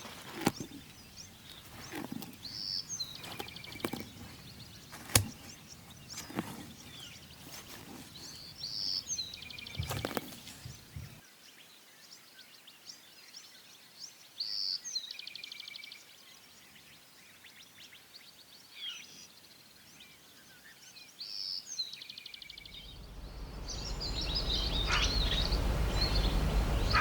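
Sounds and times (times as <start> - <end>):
songbird singing trill: 0.0 - 11.2, 21.2 - 27.0.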